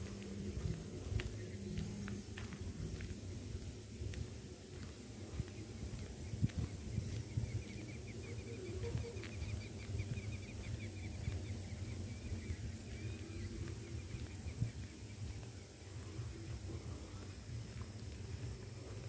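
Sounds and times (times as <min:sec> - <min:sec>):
steady low rumble: 0:00.0 - 0:19.0
bird chirping: 0:05.4 - 0:17.2.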